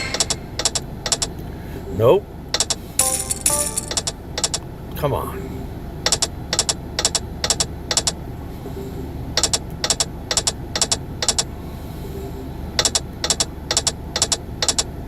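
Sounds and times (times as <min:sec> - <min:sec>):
slot reels stopping with clicks: 0:00.0 - 0:01.3, 0:02.6 - 0:04.6
low background hum: 0:00.0 - 0:15.0.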